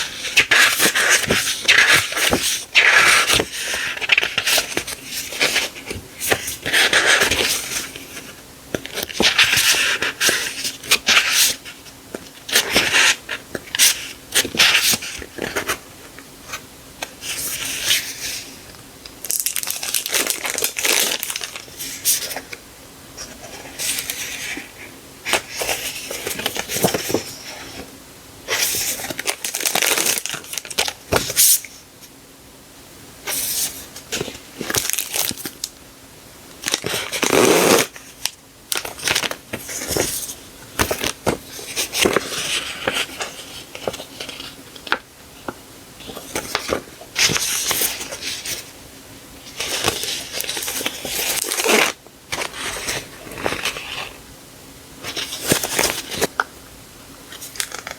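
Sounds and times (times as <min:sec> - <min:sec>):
packaging crinkling and rustling: 0:00.0 - 0:15.8, 0:19.2 - 0:22.6, 0:28.5 - 0:31.6, 0:33.3 - 0:35.7, 0:36.6 - 0:48.7, 0:49.4 - 0:54.2, 0:57.3 - 0:57.9.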